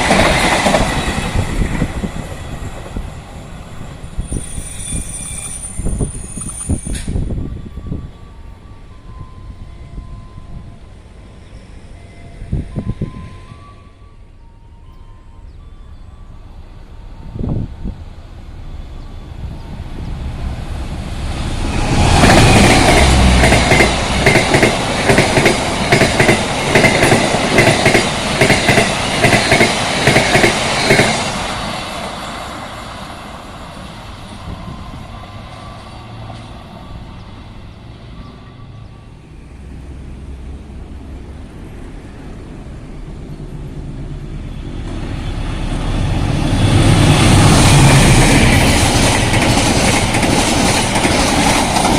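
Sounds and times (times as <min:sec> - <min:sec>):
second train approaching: 0:00.0 - 0:51.9
train wheels clattering over rail joints: 0:22.1 - 0:31.3, 0:47.4 - 0:51.9.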